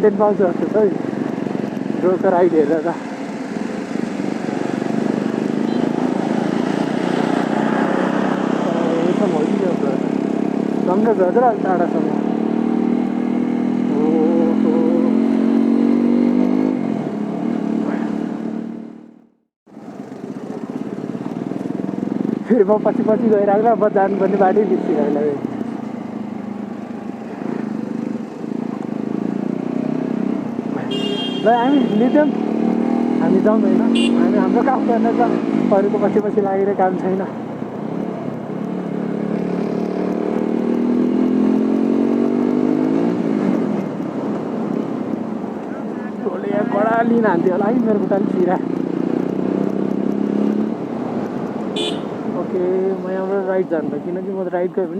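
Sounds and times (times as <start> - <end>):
motorcycle engine running: 19.7 - 42.1, 47.0 - 53.6.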